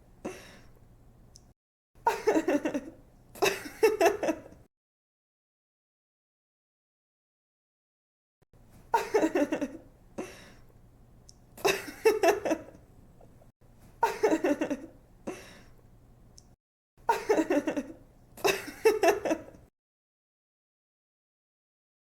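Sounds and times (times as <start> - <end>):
young woman giggling: 2.1 - 4.6, 8.9 - 9.9, 11.6 - 12.8, 14.0 - 15.5, 17.1 - 19.6.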